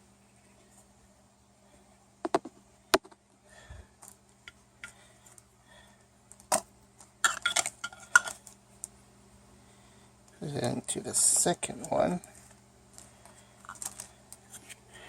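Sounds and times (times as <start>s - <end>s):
sharp clicks and taps: 2.2s - 3.2s.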